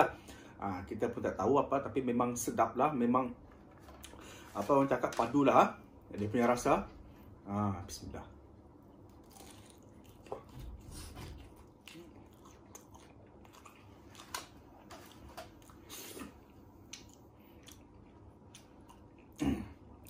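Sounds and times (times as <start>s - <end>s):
chewing with crunches: 8.9s - 20.0s.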